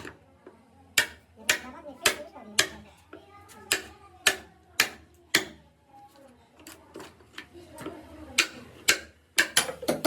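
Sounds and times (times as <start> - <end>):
hand tool striking wood: 8.4 - 10.0.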